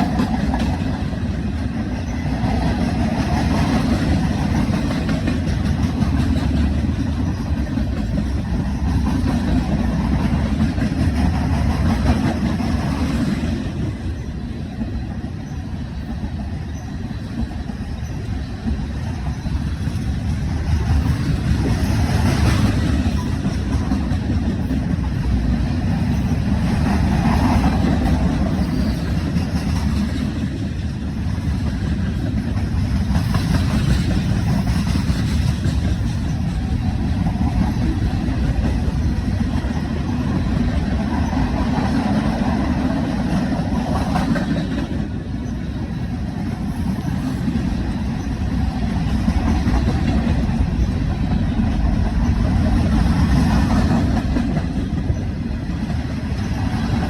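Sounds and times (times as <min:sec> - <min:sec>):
train passing with low rumble: 0:00.0 - 0:57.0.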